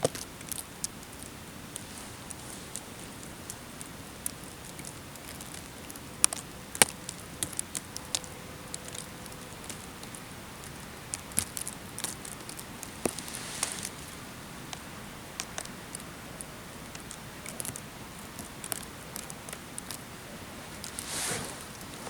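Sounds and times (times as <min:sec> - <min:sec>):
steady hiss: 0:00.0 - 0:07.4, 0:11.7 - 0:22.0
sharp clicks and crackles: 0:00.0 - 0:13.9, 0:15.4 - 0:16.1, 0:16.8 - 0:20.1.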